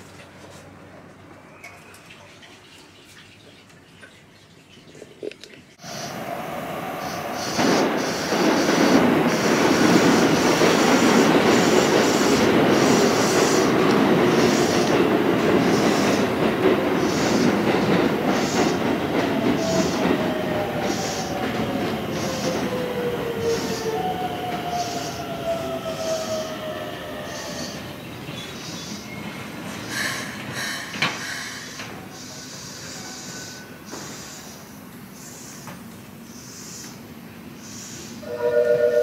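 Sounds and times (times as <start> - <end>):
train wheels rumbling and clattering: 5.8 - 34.5.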